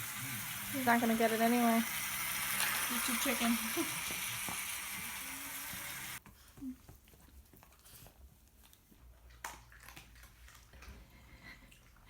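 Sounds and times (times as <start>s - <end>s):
dog chewing food: 6.2s - 12.0s.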